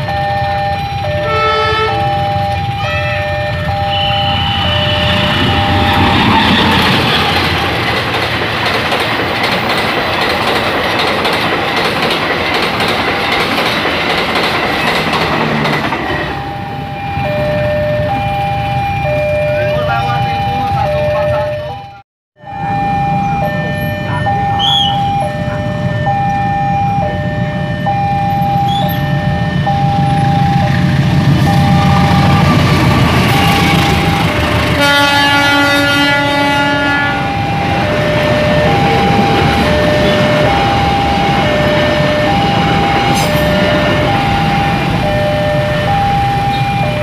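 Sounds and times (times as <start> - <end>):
level crossing two-tone signal: 0.0 - 7.4, 16.1 - 47.0
passing train rumble: 0.0 - 47.0
train horn: 1.1 - 7.4, 33.2 - 44.8.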